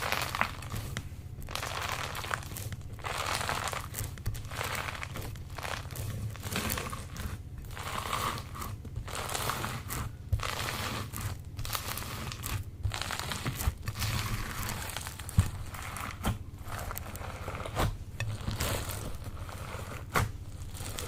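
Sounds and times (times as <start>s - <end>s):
slime crackling when squeezed: 1.4s - 6.8s.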